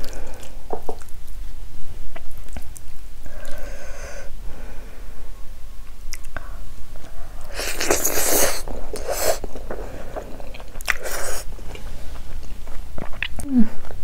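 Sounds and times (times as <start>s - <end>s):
close chewing mouth noise: 6.1s - 14.0s.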